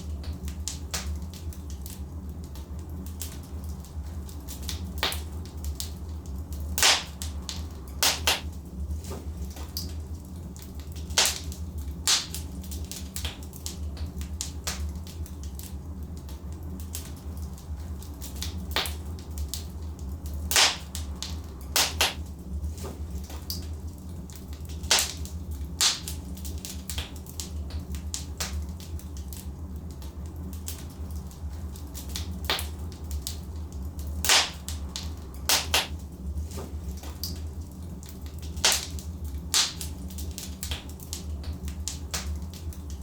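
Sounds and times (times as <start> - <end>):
logs popping and crackling: 0.0 - 43.0
wood fire rumbling: 0.0 - 43.0.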